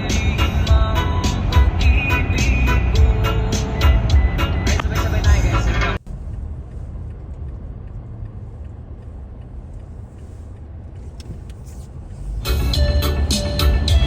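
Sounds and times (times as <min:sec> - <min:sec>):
music with a beat: 0:00.0 - 0:06.0, 0:12.4 - 0:14.0
low steady rumble: 0:00.0 - 0:14.0.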